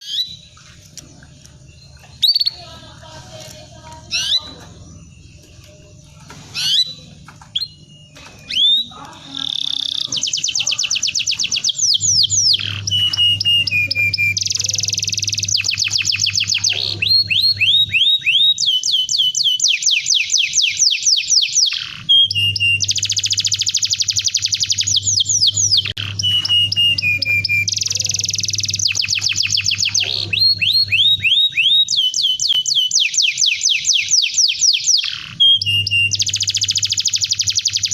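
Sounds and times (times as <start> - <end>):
canary singing: 0.0 - 37.9
low steady hum: 0.1 - 18.5.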